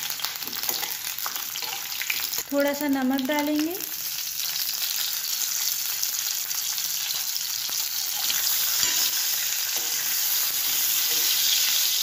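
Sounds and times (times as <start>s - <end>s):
vegetables sizzling in hot oil: 0.0s - 12.0s
metal spoon stirring in pan: 8.0s - 12.0s.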